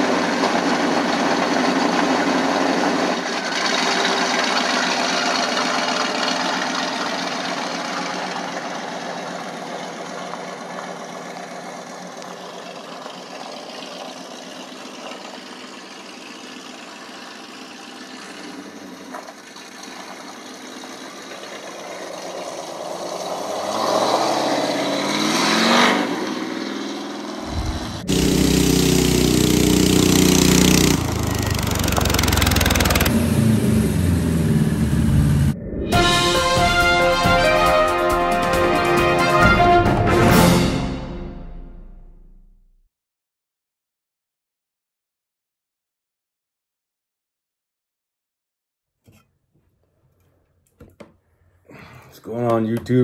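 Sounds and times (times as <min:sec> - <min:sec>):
garden tractor engine running: 0:00.0 - 0:23.3, 0:27.4 - 0:35.4
car engine revving: 0:22.4 - 0:36.1.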